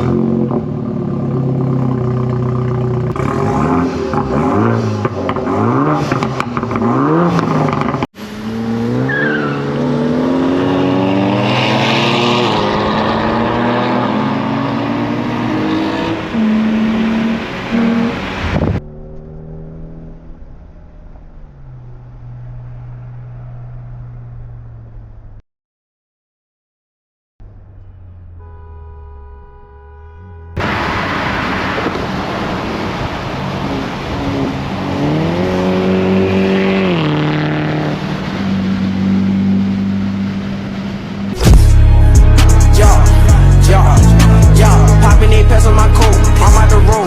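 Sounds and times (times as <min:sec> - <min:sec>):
sports car engines revving: 0:00.0 - 0:25.1, 0:30.5 - 0:47.0
car accelerating hard: 0:02.2 - 0:24.8, 0:30.6 - 0:47.0.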